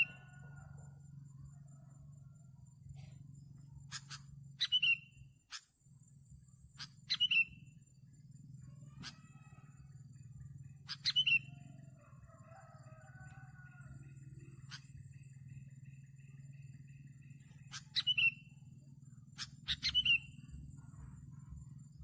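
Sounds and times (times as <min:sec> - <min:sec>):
steady low hum: 0:00.2 - 0:12.3, 0:13.7 - 0:22.0
bird chirping sharply: 0:03.9 - 0:05.2, 0:06.8 - 0:07.6, 0:17.7 - 0:18.4, 0:19.4 - 0:20.3
faint low bird warbling: 0:13.8 - 0:22.0.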